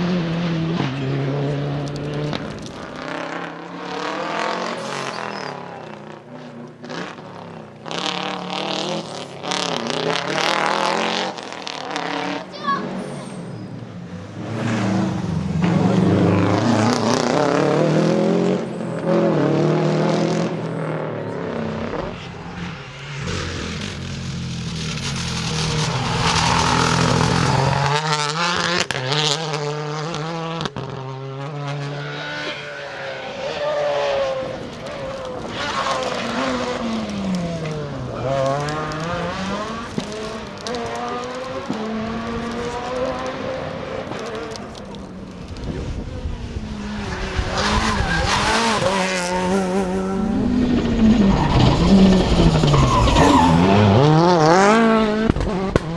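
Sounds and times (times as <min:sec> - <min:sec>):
rally car engine accelerating: 0:00.0 - 0:55.9
sharp cracks: 0:22.9 - 0:29.0, 0:33.9 - 0:46.0.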